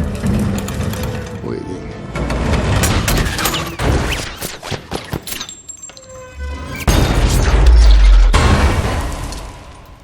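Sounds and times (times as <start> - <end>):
film score music: 0.0 - 5.0
heavy deep boom: 6.9 - 9.8
sharp metallic cracks and pops: 7.0 - 10.0.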